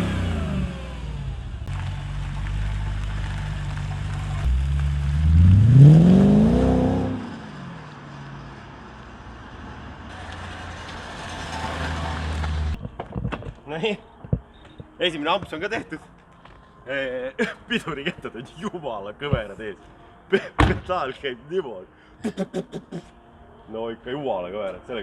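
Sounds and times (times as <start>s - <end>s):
car engine revving: 0.0s - 12.8s.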